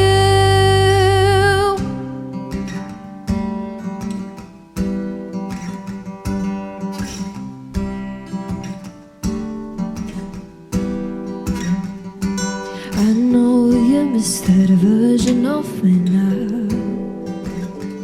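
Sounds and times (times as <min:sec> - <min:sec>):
bass: 0:00.0 - 0:02.1
person singing with vibrato: 0:00.0 - 0:02.2, 0:12.7 - 0:18.0
acoustic guitar strumming: 0:00.0 - 0:18.0.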